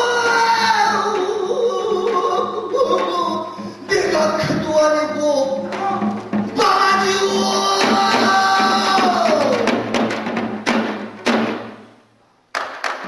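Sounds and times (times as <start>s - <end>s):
person singing long sliding note: 0.0s - 9.8s
hourglass drum strokes: 0.2s - 11.8s.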